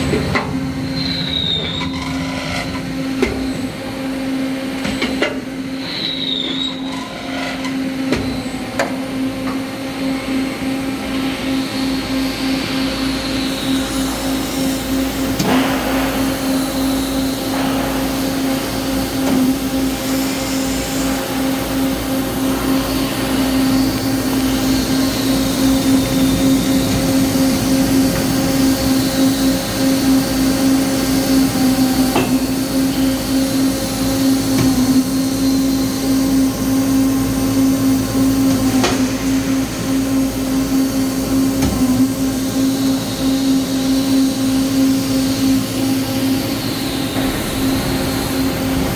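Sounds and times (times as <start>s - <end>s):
machine humming: 0.0s - 48.9s.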